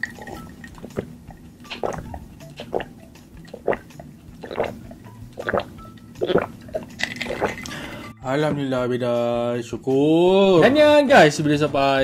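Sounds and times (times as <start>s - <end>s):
person chewing food: 0.0s - 7.9s.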